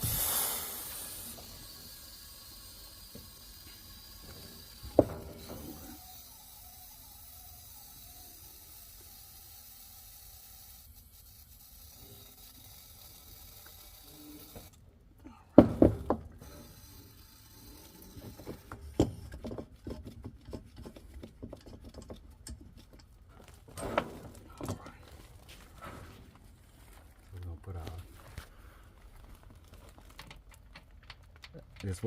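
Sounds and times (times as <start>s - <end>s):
faint steady hiss: 0.0s - 14.8s
loud knocks: 15.6s - 16.3s
tools and parts tapping: 18.2s - 23.2s.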